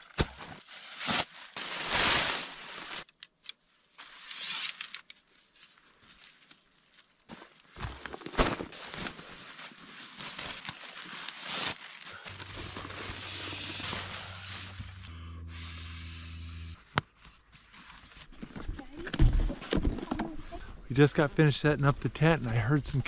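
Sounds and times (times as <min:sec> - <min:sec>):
camp gear rustling and knocking: 0:16.9 - 0:20.4.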